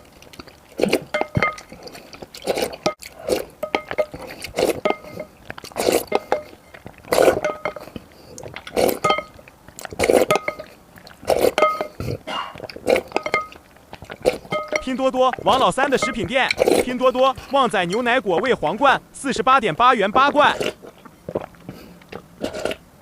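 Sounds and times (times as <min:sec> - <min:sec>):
wet chewing mouthfuls: 0:00.0 - 0:19.2, 0:20.0 - 0:23.0
spoon clinking on bowl: 0:03.6 - 0:04.2, 0:09.0 - 0:09.4, 0:13.1 - 0:13.6, 0:14.5 - 0:14.9.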